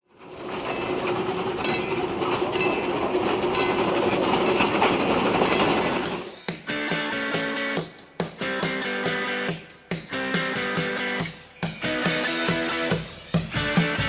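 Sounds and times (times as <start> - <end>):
train running on rails: 0.1 - 6.5.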